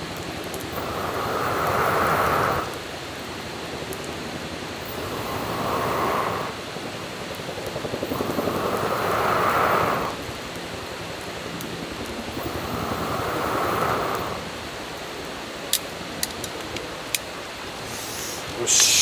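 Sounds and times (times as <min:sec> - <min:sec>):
fire crackling: 0:00.0 - 0:19.0
person blowing on fire: 0:17.8 - 0:19.0.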